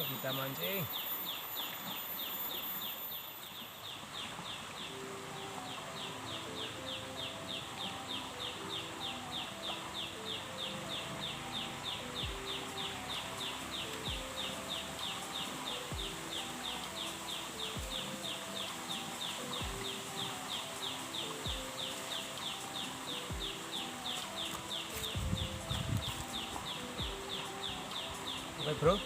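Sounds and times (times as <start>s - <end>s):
animal rhythmic high chirping: 0.0s - 29.0s.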